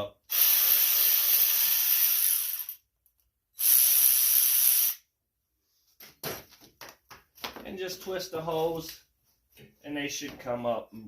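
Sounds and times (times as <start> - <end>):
pressurized spray hissing: 3.6 - 5.0.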